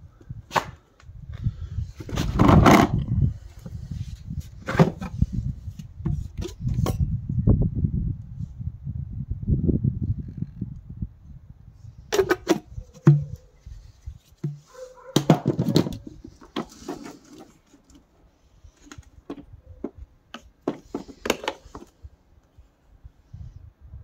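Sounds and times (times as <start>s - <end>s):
plastic parts clicking and knocking: 18.8s - 21.9s.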